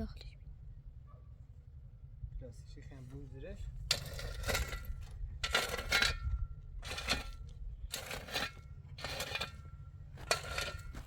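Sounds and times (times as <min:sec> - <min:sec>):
metallic scraping strokes: 0:06.8 - 0:11.0.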